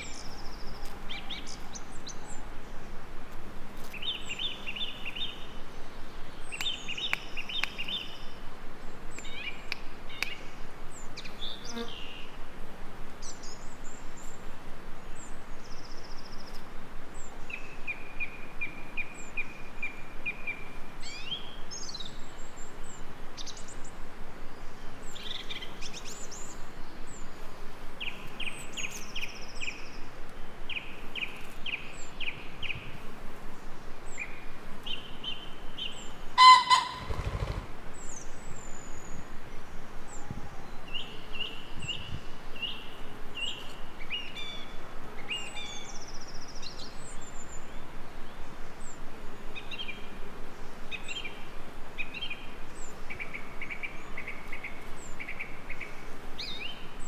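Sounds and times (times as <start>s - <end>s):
steady background hiss: 0.0s - 57.0s
songbirds singing and calling: 3.8s - 12.4s, 33.6s - 57.0s
loud harsh bird call: 36.4s - 37.8s.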